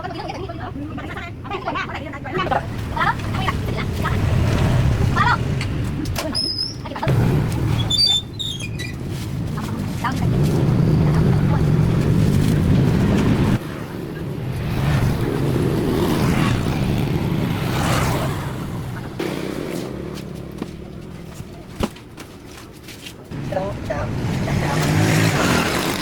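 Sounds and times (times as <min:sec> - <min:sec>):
road traffic noise: 0:00.0 - 0:26.0
vehicle engine running: 0:18.4 - 0:21.8.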